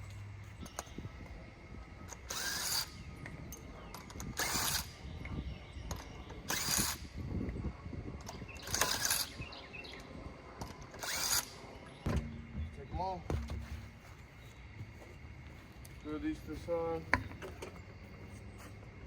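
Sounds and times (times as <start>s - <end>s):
car jack ratcheting: 8.2s - 9.4s, 10.6s - 12.4s.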